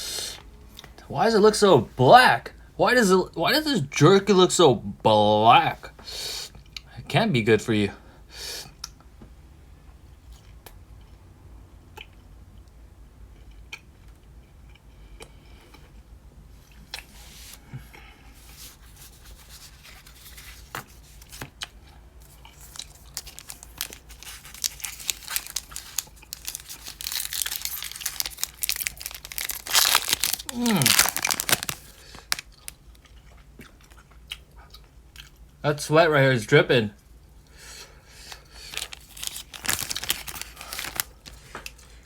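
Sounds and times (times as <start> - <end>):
foil packaging crinkling and tearing: 18.6 - 21.5, 22.2 - 32.8, 38.3 - 41.9.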